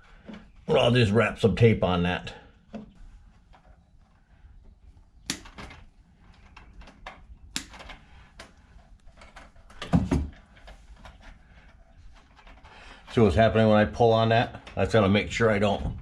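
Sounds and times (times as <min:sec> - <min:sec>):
tape clicks and crackles: 0:02.7 - 0:13.2.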